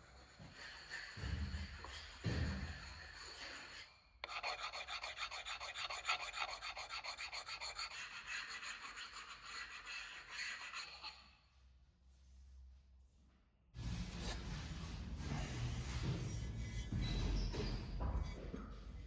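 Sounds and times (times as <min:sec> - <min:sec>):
hand tool rubbing hard surface: 0:00.0 - 0:11.2.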